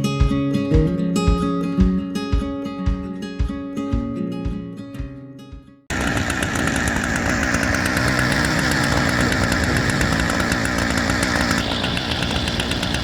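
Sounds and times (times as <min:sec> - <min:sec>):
engine running steadily: 0:05.9 - 0:13.0.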